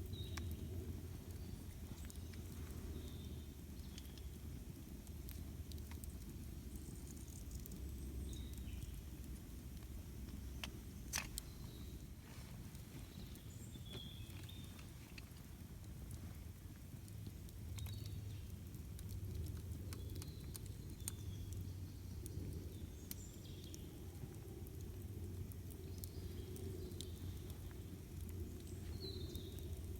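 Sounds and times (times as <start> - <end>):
campfire crackling and popping: 0.0 - 29.9
low steady rumble: 0.0 - 29.9.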